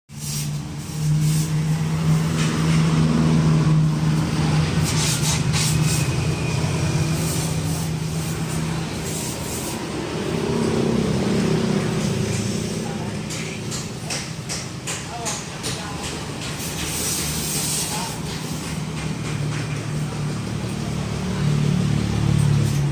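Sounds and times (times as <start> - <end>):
car engine idling: 6.6 - 22.3.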